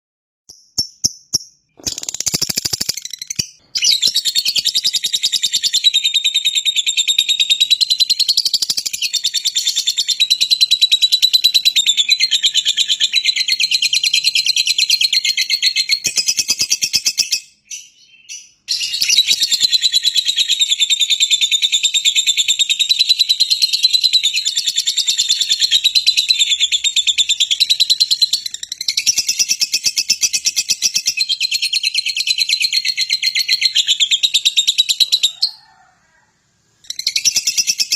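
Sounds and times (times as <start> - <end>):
lovebird chattering trills: 1.8 - 6.0.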